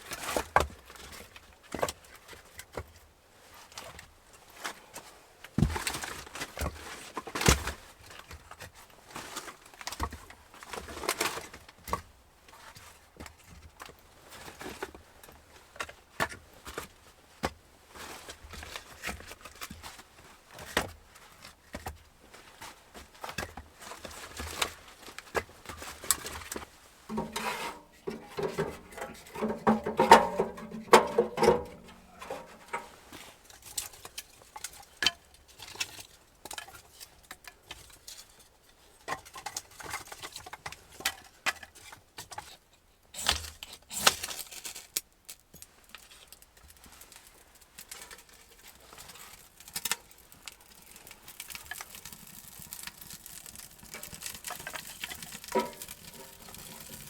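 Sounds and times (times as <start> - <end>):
clattering and ringing: 27.1 - 33.0, 55.5 - 55.9
objects knocking and clattering: 27.1 - 33.3, 53.5 - 57.0.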